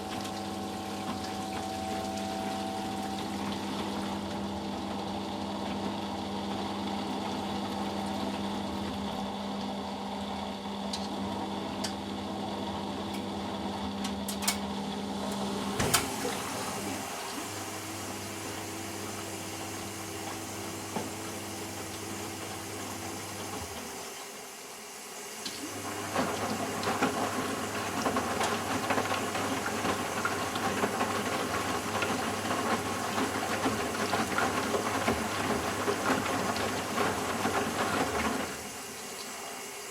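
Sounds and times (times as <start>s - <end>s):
machine hum: 0.0s - 23.6s
water moving in washing machine: 0.0s - 39.9s.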